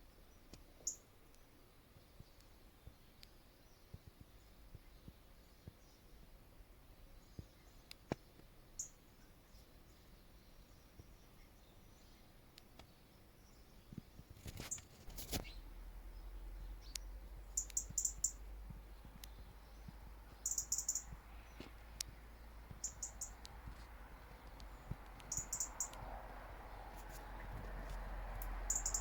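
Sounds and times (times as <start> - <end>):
small birds chirping: 0.0 - 29.0
sharp clicks: 16.8 - 26.2.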